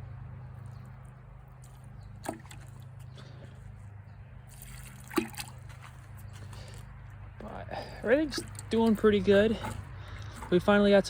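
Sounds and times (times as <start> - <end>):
water trickling onto plants: 4.4 - 11.0.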